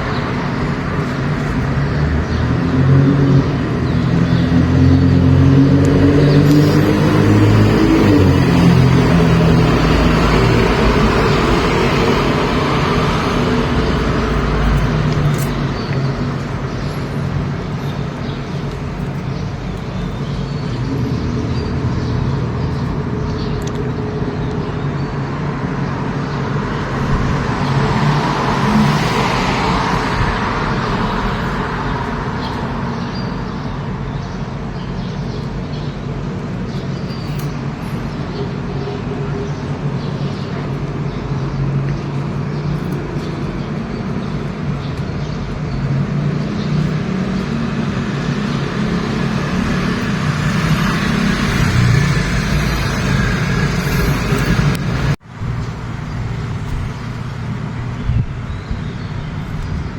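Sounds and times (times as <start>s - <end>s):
vehicle passing close: 0.0s - 19.7s, 25.4s - 33.1s, 41.7s - 57.9s
road traffic with engine hum: 0.0s - 59.9s.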